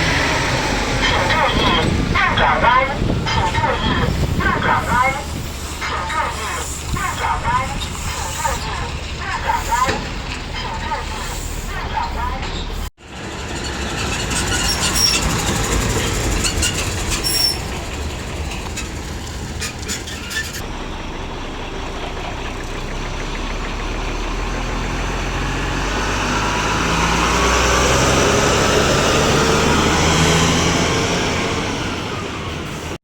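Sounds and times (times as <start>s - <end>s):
road noise: 0.0s - 33.0s
truck engine rumble: 0.0s - 33.0s.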